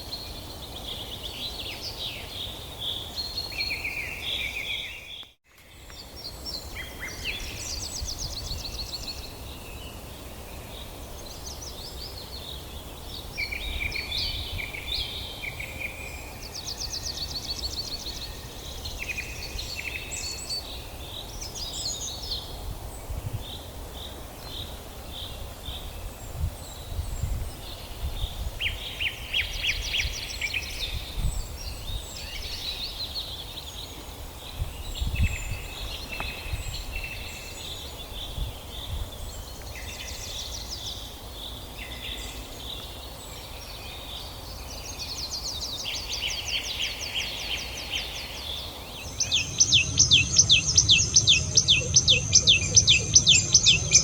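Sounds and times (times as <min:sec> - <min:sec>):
songbirds chirping and trilling: 0:00.0 - 0:54.0
low rumble: 0:49.0 - 0:54.0.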